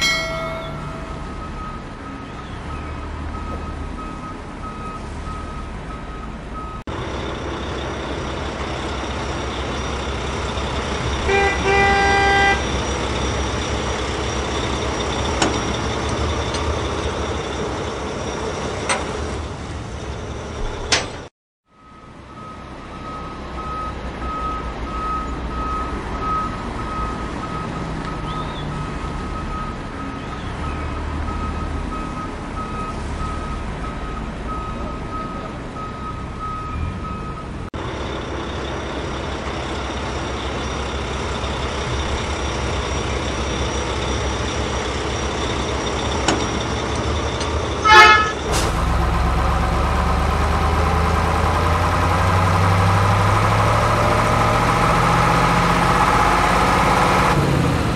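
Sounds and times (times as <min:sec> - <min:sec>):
truck engine rumble: 0:00.0 - 0:57.9
horn toot: 0:11.2 - 0:12.7, 0:47.8 - 0:48.8.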